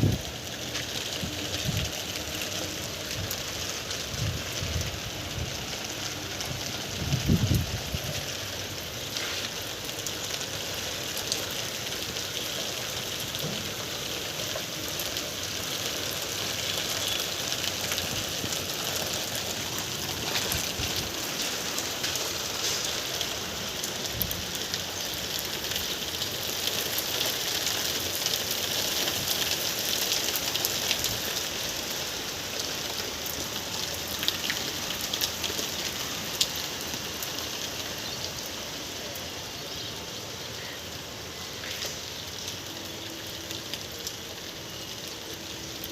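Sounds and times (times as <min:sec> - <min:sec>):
steady rain hiss: 0:00.0 - 0:45.9.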